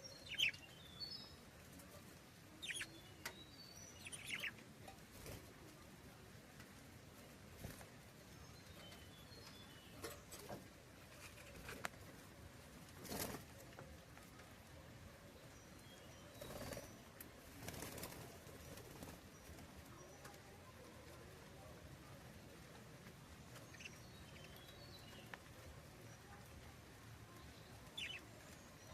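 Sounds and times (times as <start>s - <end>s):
budgerigars chirping: 4.0s - 4.6s.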